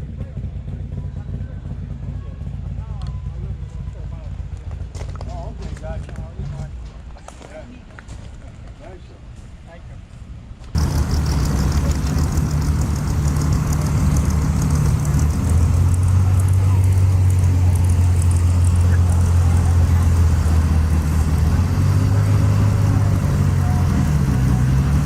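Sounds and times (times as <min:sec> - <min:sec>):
car engine rumbling: 0:10.8 - 0:25.0.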